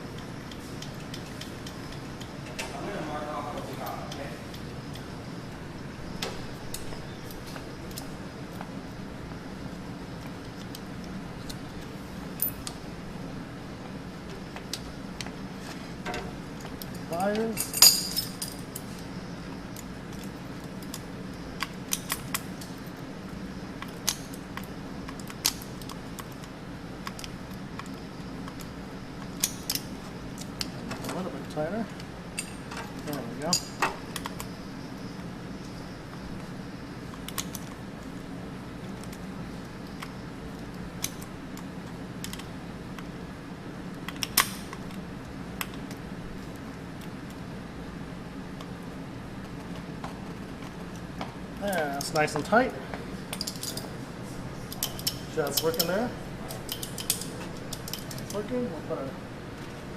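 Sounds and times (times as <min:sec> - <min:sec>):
steady low hum: 0:00.0 - 0:59.9
pliers clicking on metal: 0:54.7 - 0:58.4.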